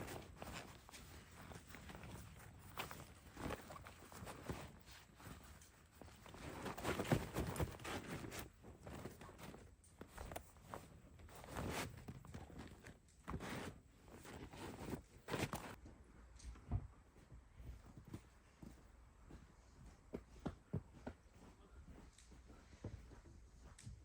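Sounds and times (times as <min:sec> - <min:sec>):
footsteps crunching in snow: 0:00.0 - 0:15.8
rustling: 0:00.0 - 0:23.9.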